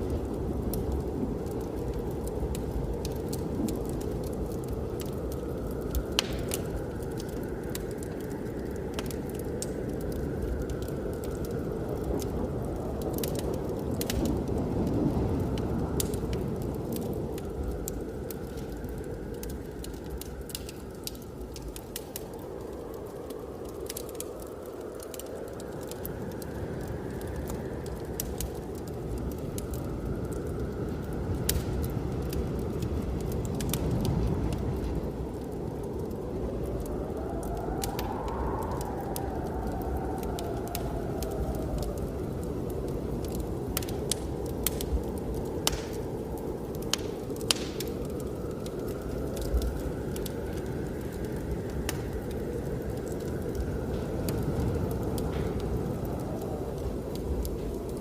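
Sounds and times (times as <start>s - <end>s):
blizzard wind rushing: 0.0s - 58.0s
wood fire crackling and popping: 0.0s - 58.0s
faint wind whistle: 25.6s - 58.0s.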